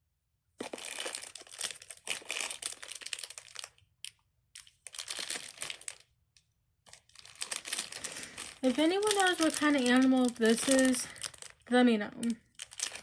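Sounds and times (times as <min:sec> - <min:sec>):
crinkly packaging crumpling: 0:00.6 - 0:06.2, 0:06.9 - 0:13.0.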